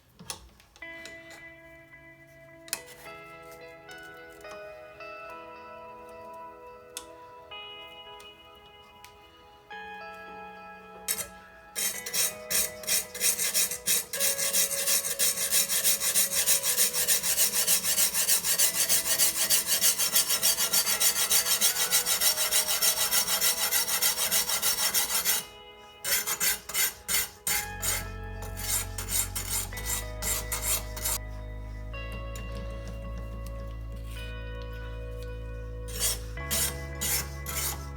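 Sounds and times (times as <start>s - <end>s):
sharpening stone rubbing knife edge: 11.1s - 25.5s, 26.1s - 31.2s, 35.9s - 37.9s.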